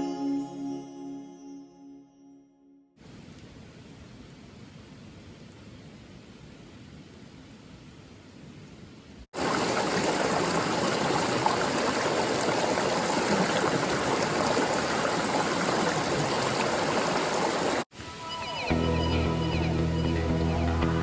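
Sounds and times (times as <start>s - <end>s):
running water rushing: 9.4s - 18.7s.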